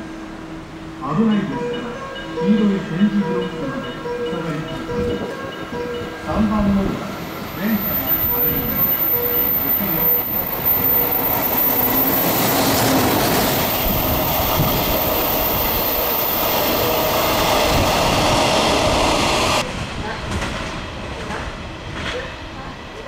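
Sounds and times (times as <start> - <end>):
train wheels rolling on rails: 4.7 - 23.0.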